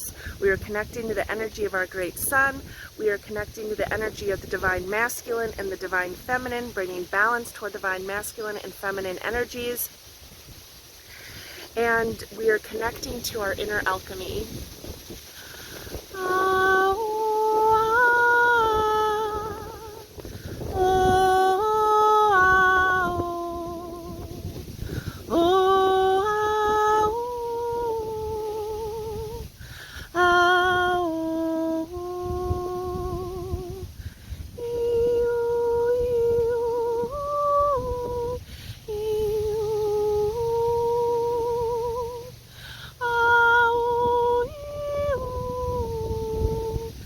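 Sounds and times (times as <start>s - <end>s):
woman breathing: 0.2s - 0.4s, 2.7s - 3.0s, 10.9s - 11.8s, 15.2s - 16.1s, 20.2s - 20.6s, 29.6s - 30.2s, 34.0s - 34.5s, 38.4s - 38.9s, 42.4s - 43.0s
woman humming held notes: 16.0s - 29.5s, 30.1s - 33.9s, 34.5s - 42.4s, 43.0s - 47.0s.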